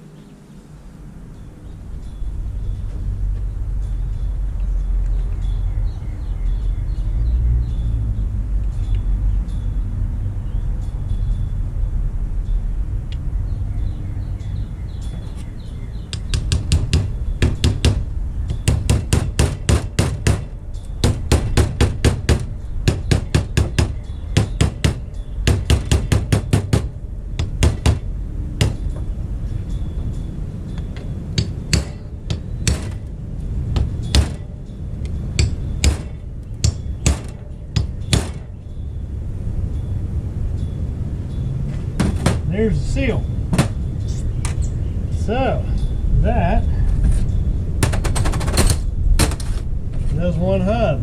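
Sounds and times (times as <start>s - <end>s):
hammer tapping metal: 16.1s - 29.1s, 30.8s - 33.1s, 33.8s - 34.5s, 35.3s - 38.6s.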